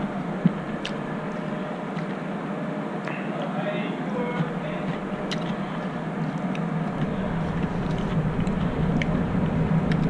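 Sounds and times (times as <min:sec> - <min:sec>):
chewing clicks: 0:00.0 - 0:02.2, 0:04.4 - 0:10.0
low mechanical hum: 0:00.0 - 0:10.0
deep rumble: 0:04.4 - 0:10.0.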